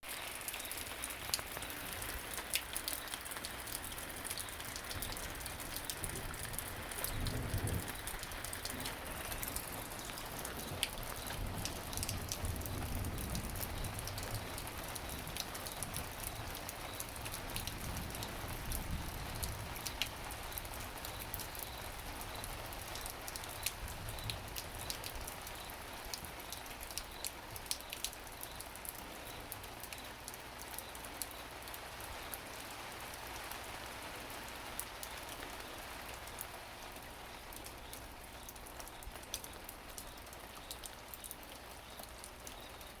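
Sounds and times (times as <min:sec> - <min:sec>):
rain falling steadily: 0:00.0 - 0:43.0
raindrops ticking on hard surfaces: 0:00.0 - 0:43.0
low thunder rumble: 0:06.0 - 0:16.2.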